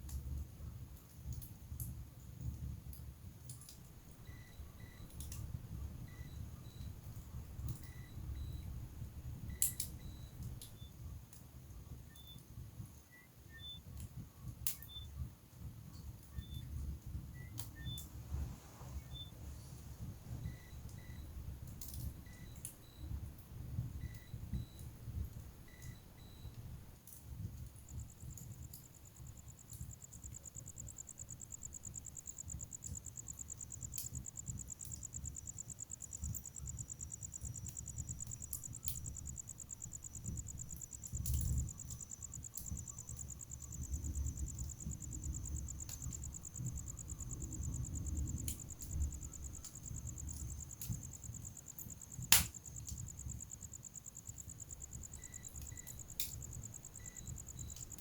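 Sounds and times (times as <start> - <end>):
wood fire crackling and popping: 5.0 - 6.0, 9.3 - 11.6, 19.2 - 58.0.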